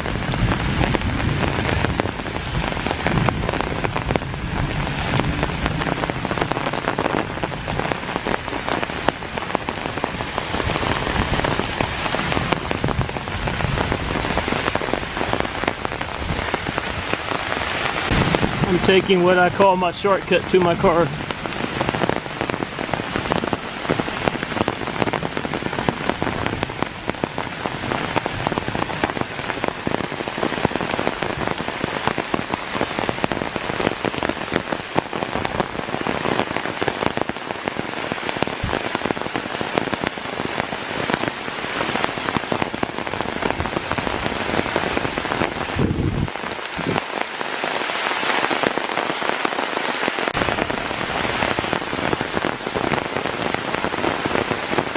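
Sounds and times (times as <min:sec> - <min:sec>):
heavy rain falling: 0:00.0 - 0:54.9
low rumble: 0:45.7 - 0:47.0.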